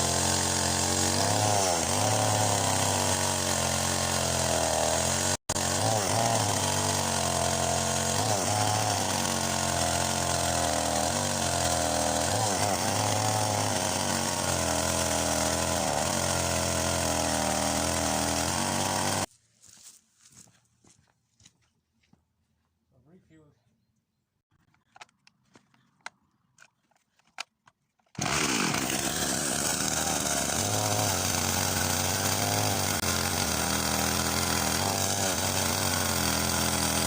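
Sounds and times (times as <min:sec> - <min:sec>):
chainsaw cutting branches: 0:00.0 - 0:19.3, 0:28.1 - 0:37.0.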